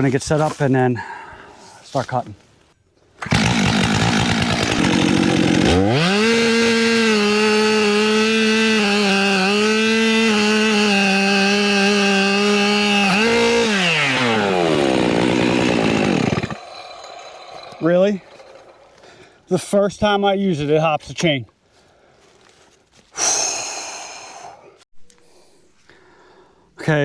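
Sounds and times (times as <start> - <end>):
chainsaw engine revving: 3.2 - 19.2.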